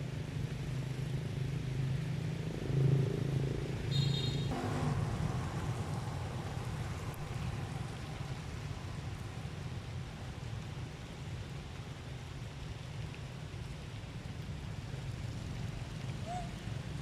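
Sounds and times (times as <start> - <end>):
low motor rumble: 4.5 - 10.8.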